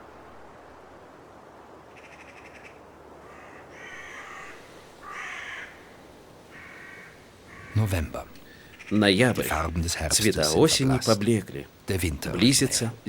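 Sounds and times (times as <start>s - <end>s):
faint hiss: 0.0s - 13.0s
crows cawing: 2.0s - 9.1s.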